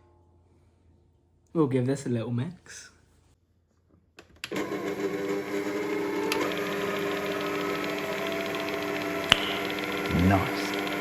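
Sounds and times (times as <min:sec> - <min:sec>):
electric hand mixer running: 0:04.5 - 0:11.0.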